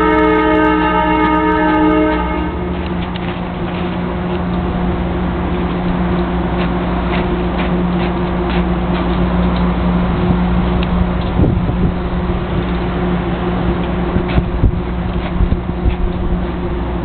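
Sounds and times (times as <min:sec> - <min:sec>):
multi-tone train horn: 0:00.0 - 0:03.3
electric train humming: 0:00.0 - 0:17.0.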